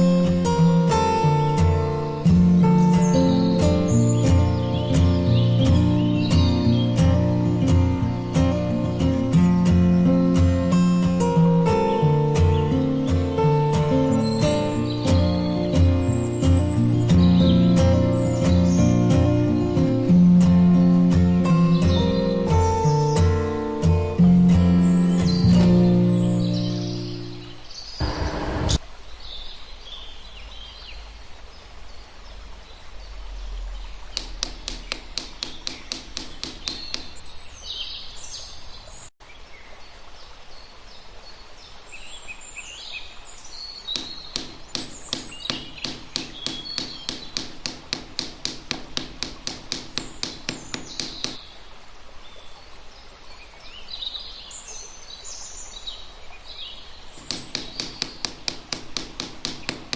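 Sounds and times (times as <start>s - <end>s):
birds chirping: 0.0s - 28.8s, 34.2s - 39.1s, 43.8s - 51.4s, 57.1s - 59.9s
rapid knocking on wood: 34.2s - 37.2s, 44.0s - 51.4s, 57.2s - 59.9s.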